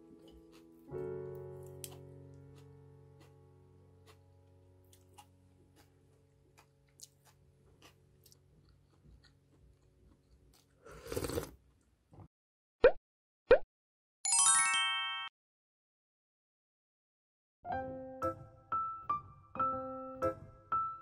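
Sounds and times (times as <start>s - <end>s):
person chewing and crunching: 0.0s - 11.6s.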